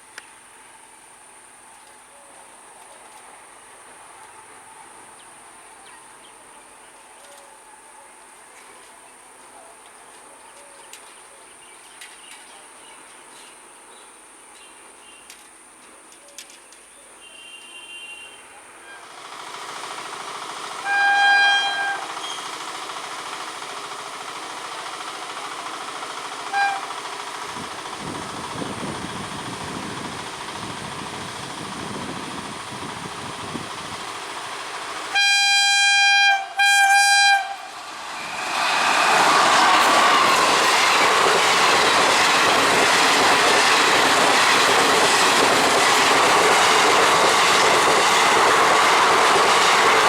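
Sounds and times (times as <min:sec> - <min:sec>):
train horn blasts: 0:17.2 - 0:19.2, 0:20.8 - 0:22.4, 0:26.5 - 0:27.0, 0:35.1 - 0:37.8
train rumbling past: 0:18.7 - 0:50.0.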